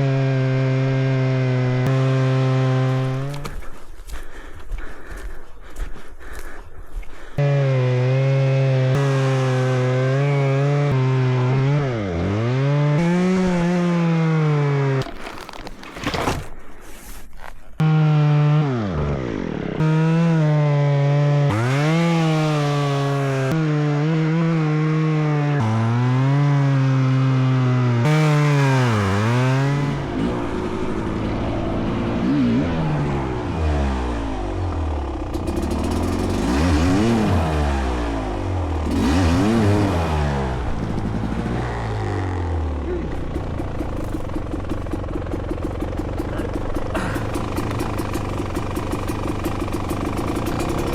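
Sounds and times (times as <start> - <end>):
chainsaw running at high revs: 0.0 - 15.9, 17.8 - 50.9
rough irregular noise: 15.0 - 17.8.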